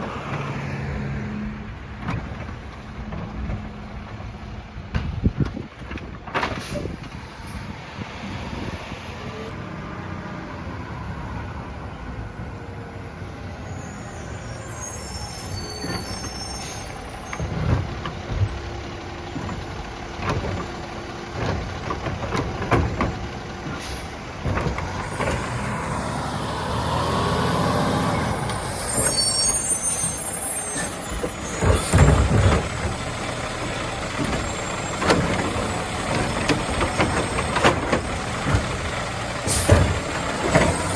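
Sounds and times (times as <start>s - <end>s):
garbage truck diesel engine: 0.0s - 40.9s
air brake squeals and hisses: 13.2s - 17.7s, 23.7s - 24.2s, 24.8s - 33.1s, 39.4s - 40.9s.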